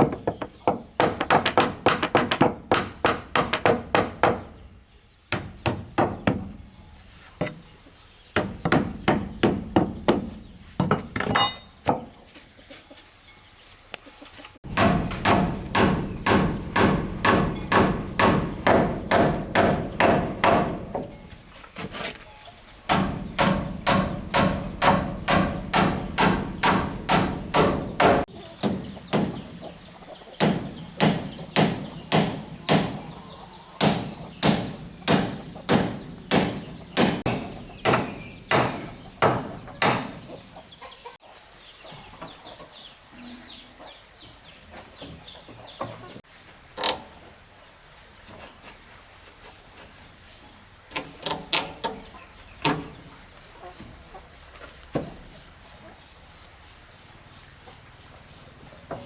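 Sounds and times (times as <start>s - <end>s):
chopping strikes: 14.7s - 21.1s, 33.8s - 40.3s.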